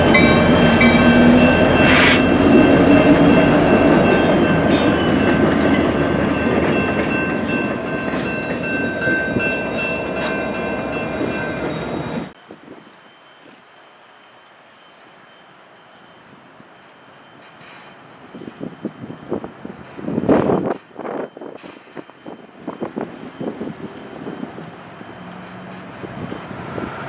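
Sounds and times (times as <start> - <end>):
crossing signal ringing: 0.0 - 12.4, 20.5 - 26.2.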